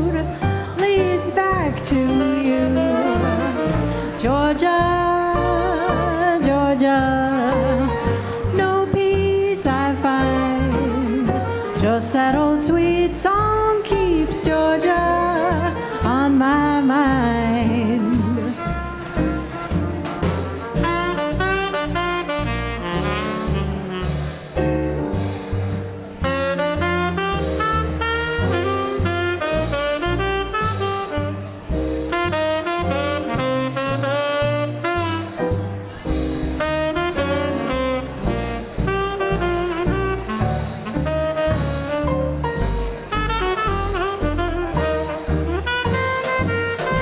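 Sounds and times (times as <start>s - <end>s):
bass line: 0.0s - 47.0s
light drums: 0.0s - 47.0s
piano: 0.0s - 47.0s
saxophone melody: 2.0s - 8.9s, 10.0s - 13.0s, 18.0s - 24.8s, 26.0s - 47.0s.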